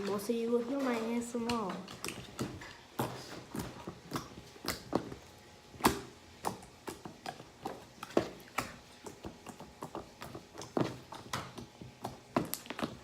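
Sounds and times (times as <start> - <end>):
slime clicking and popping: 3.5 - 5.2.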